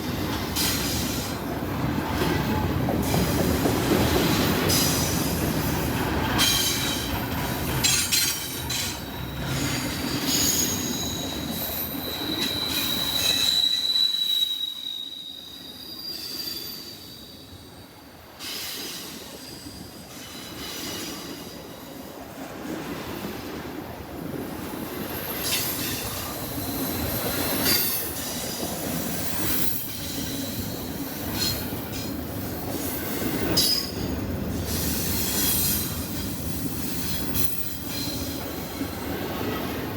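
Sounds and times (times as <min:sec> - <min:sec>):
freight train cars rolling: 0:00.0 - 0:39.9
wheel flanges squealing: 0:07.8 - 0:17.5.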